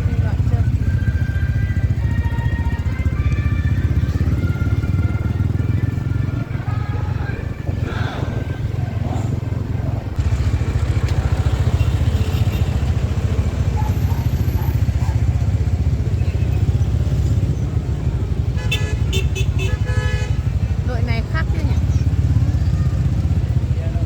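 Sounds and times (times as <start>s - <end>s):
vehicle engine rumble: 0.0s - 24.0s.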